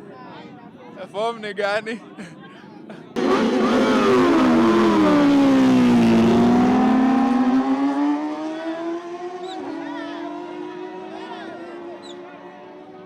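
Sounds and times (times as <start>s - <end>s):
motorcycle engine at high revs: 3.2s - 11.1s.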